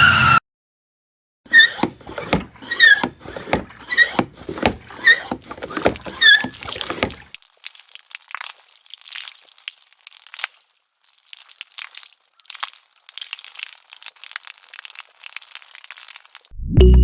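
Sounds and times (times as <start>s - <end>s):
short squeaks with clicks: 1.5s - 7.3s.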